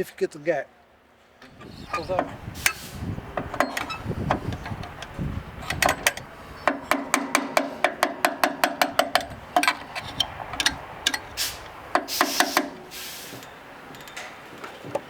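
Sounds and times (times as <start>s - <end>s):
hammer tapping on metal: 2.0s - 11.3s, 11.9s - 12.9s.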